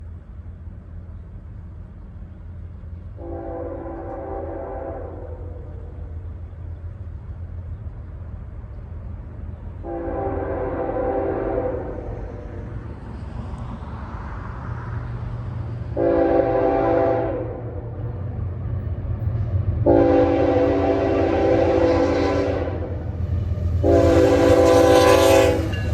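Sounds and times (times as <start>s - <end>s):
low rumble of locomotives: 0.0s - 25.9s
locomotive air horn blasts: 3.2s - 5.7s, 9.8s - 12.6s, 16.0s - 17.9s, 19.8s - 23.1s, 23.8s - 25.9s.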